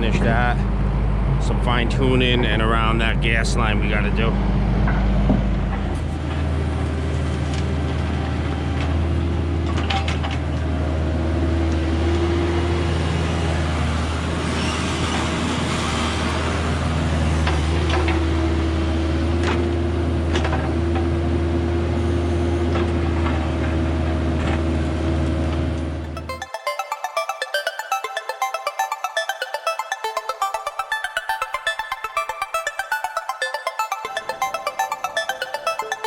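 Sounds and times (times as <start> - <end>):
high steady tone: 26.0 - 36.0.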